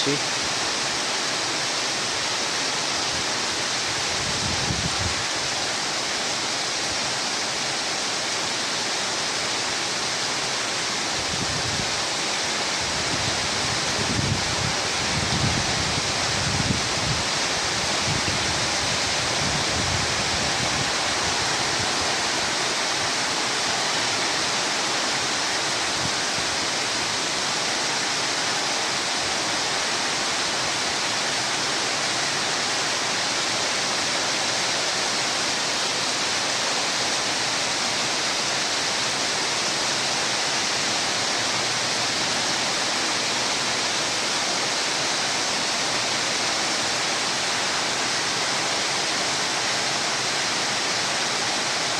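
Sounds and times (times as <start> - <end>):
heavy rain pouring: 0.0 - 51.9
wind rumbling on microphone: 3.9 - 5.5, 11.2 - 12.0, 12.8 - 23.3.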